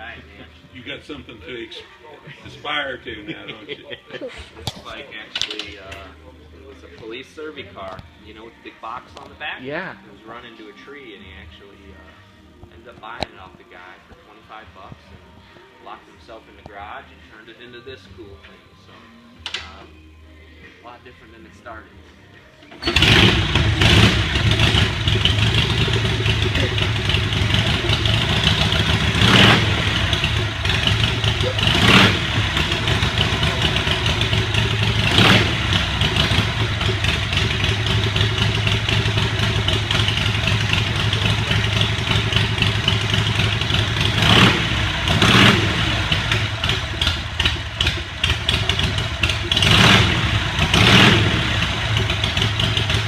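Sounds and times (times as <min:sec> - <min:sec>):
motorcycle engine idling: 0:22.8 - 0:53.0.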